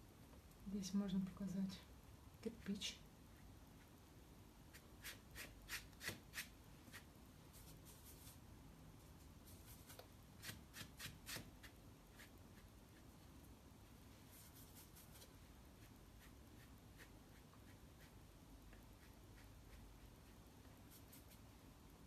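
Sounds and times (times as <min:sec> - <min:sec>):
watercolour brush strokes on paper: 0:04.7 - 0:08.4, 0:09.0 - 0:13.2, 0:14.0 - 0:21.5.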